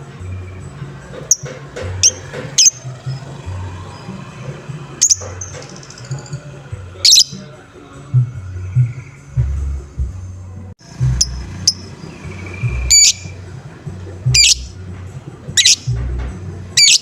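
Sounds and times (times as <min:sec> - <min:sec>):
music with low beat: 0:00.0 - 0:17.0
lovebird high-pitched calls: 0:01.2 - 0:07.5, 0:11.0 - 0:14.8, 0:15.6 - 0:16.0, 0:16.8 - 0:17.0.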